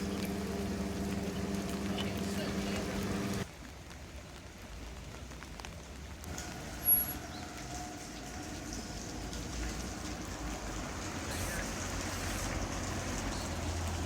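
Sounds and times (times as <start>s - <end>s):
steady rain falling: 0.0s - 14.0s
vehicle passing on wet road: 6.2s - 14.0s.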